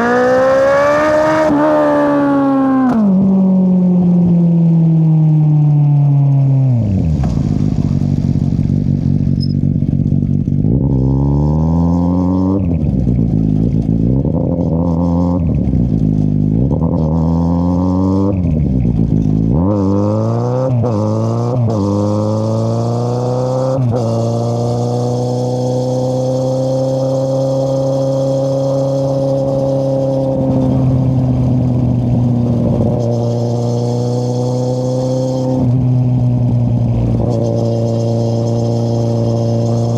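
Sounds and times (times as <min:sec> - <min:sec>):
motorcycle engine revving: 0:00.0 - 0:04.4, 0:06.8 - 0:39.9.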